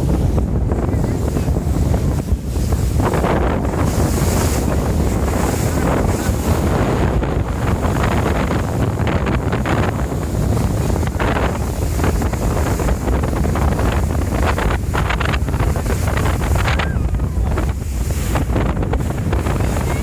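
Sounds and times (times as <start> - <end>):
boat engine rumble: 0.0 - 20.0
water rushing past hull: 0.0 - 20.0
wind buffeting microphone: 0.0 - 20.0.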